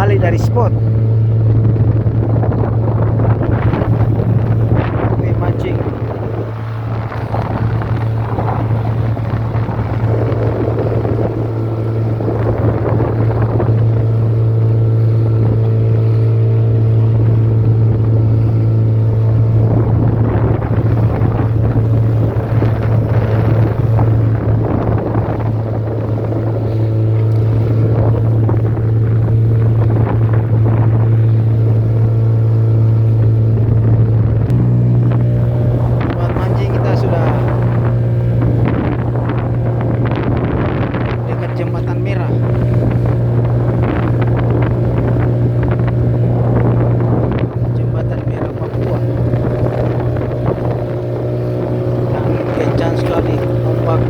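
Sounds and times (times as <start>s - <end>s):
boat motor running: 0.0s - 54.0s
rushing water: 0.0s - 54.0s
wind buffeting microphone: 0.0s - 54.0s.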